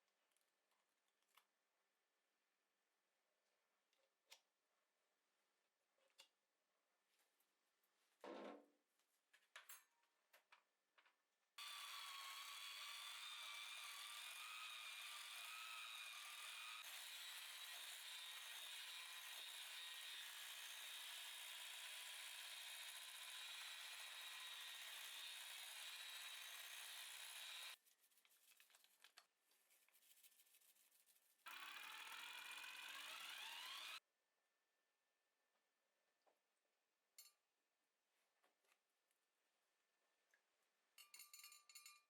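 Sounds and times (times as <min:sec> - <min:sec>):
small electric motor whining: 0:11.6 - 0:27.8, 0:31.5 - 0:34.0.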